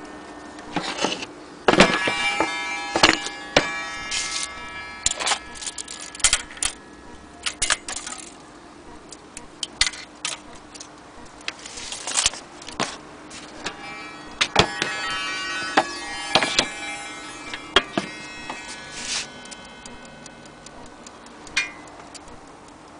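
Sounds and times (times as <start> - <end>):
faint steady hum: 0.0 - 22.9
small metal parts clinking: 2.9 - 6.8, 7.4 - 8.5, 9.1 - 16.7, 20.6 - 22.2.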